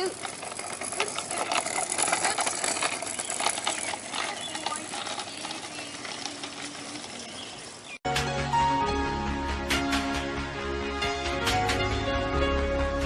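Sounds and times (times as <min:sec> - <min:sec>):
small clicks and rattles: 0:00.0 - 0:07.8
music: 0:08.1 - 0:13.0.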